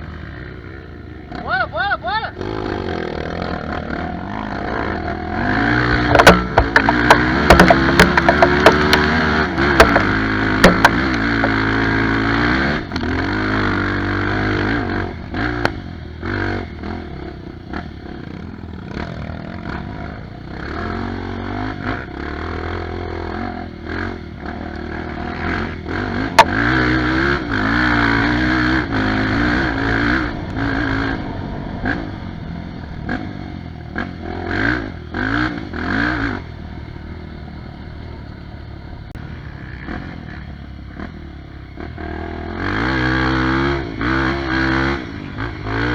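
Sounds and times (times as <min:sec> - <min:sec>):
motorcycle engine revving: 0:00.0 - 0:45.9
sharp knocks and clatters: 0:05.9 - 0:11.7.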